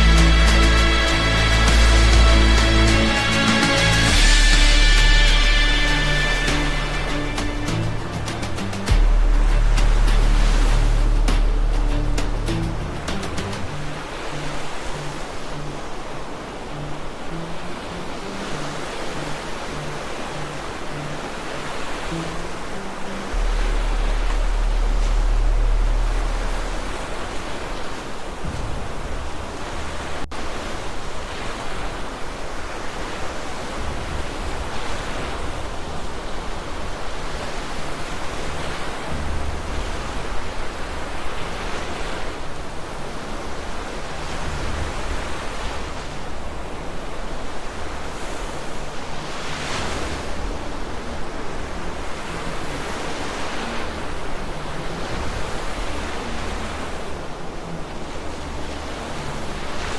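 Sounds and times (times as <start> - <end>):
heavy low rumble: 0.0 - 14.0, 23.3 - 27.7, 28.3 - 30.3
crashing surf: 0.0 - 59.9
rushing flood water: 0.0 - 59.9.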